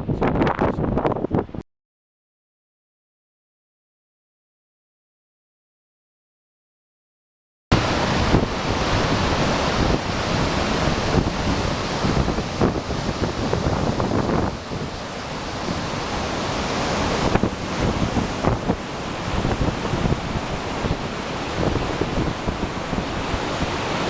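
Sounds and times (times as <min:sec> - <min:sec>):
wind buffeting microphone: 0:00.0 - 0:01.6, 0:07.7 - 0:24.0
waterfall roaring: 0:07.7 - 0:24.0.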